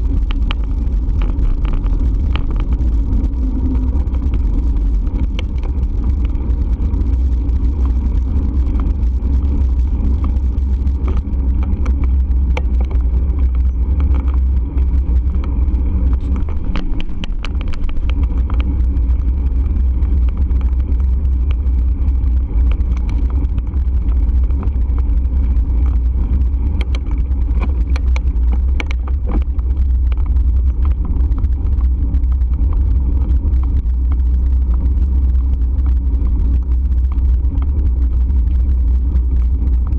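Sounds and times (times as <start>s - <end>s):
small clicks and rattles: 0.0s - 39.9s
wind and road noise: 0.0s - 39.9s.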